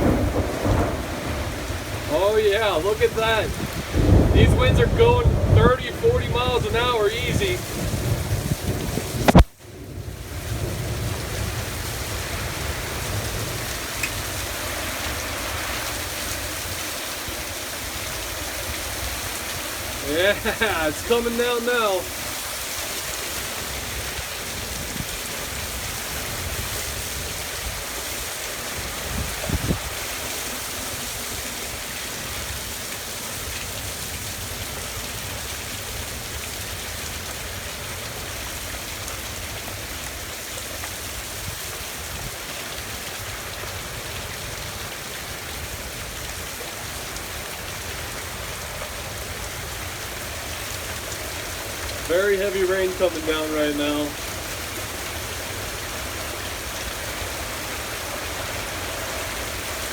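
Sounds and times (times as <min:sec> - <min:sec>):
wind rumbling on microphone: 0:00.0 - 0:21.2, 0:22.0 - 0:33.5
heavy rain pouring: 0:00.0 - 0:59.9.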